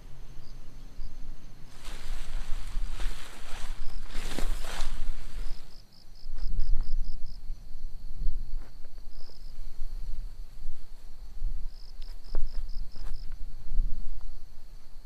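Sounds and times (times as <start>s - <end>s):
steady low rumble: 0.0s - 5.8s
cricket chirping in trills: 0.0s - 15.0s.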